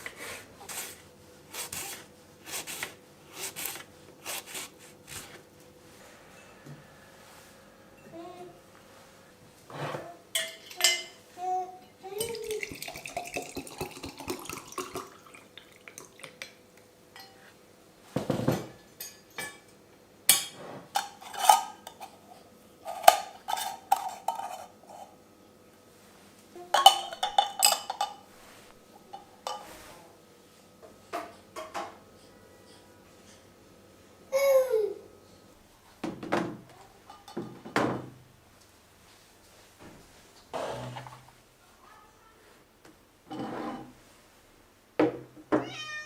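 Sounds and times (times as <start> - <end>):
dishes and cutlery clinking: 10.3 - 11.2, 11.8 - 16.6, 17.2 - 17.5, 18.2 - 25.1, 26.7 - 28.3, 29.0 - 29.9, 36.7 - 38.0.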